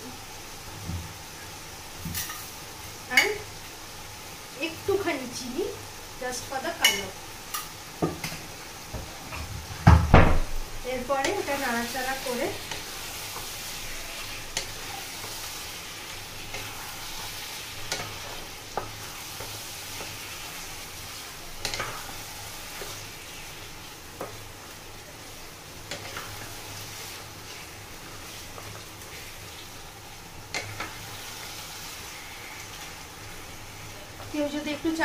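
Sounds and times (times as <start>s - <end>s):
chicken sizzling in a frying pan: 0.0s - 35.0s.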